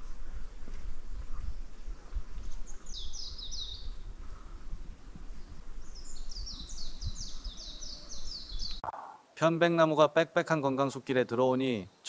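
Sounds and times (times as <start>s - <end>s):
songbird chirping: 1.9s - 4.1s, 5.0s - 9.4s.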